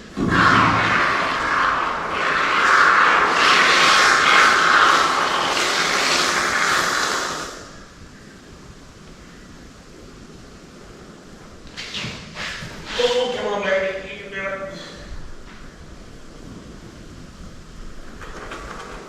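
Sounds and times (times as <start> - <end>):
aerosol spray foam hissing: 0.2 - 7.8.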